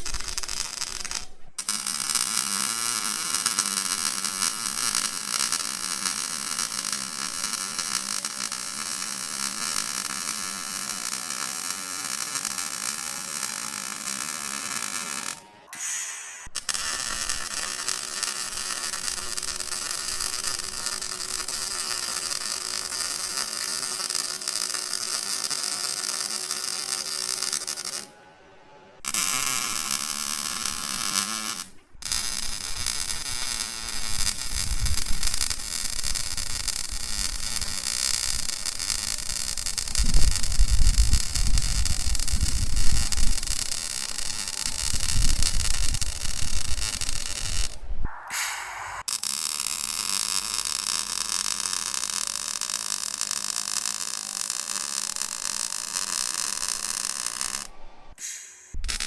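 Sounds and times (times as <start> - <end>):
welding arc crackling and hissing: 0.0 - 28.1, 29.0 - 59.0
low rumble: 47.9 - 49.2.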